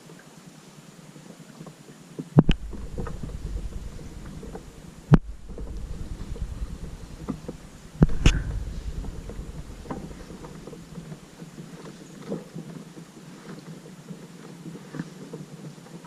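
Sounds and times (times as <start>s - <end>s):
faint ticks: 1.6s - 16.0s
wind rumble on microphone: 2.3s - 14.2s
sharp knocks: 2.4s - 11.7s.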